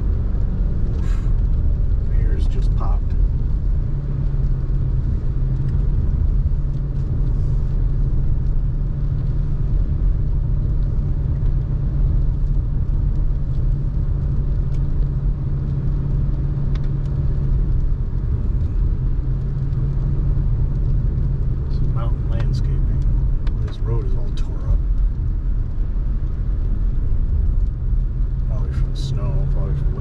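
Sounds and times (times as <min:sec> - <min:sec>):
car engine and tyre hum: 0:00.0 - 0:30.0.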